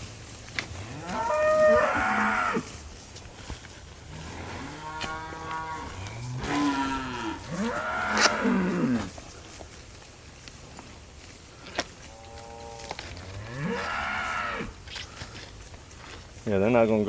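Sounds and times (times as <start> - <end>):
cattle mooing: 0.8 - 2.7, 4.1 - 9.1, 12.1 - 14.8.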